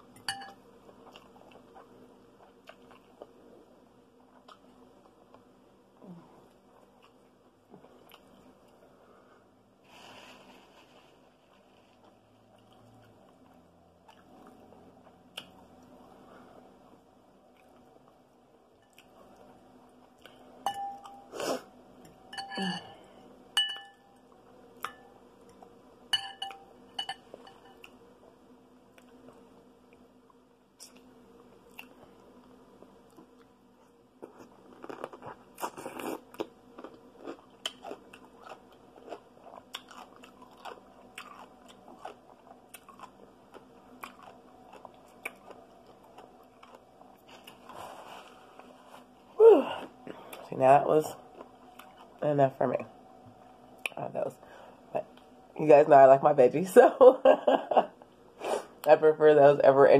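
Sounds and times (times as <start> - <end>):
utensil clinking glass bowl: 0.2 - 0.6, 20.6 - 21.2, 22.3 - 23.0, 23.6 - 24.2, 26.1 - 27.8
person chewing crunchy food: 34.2 - 49.2, 51.3 - 52.2.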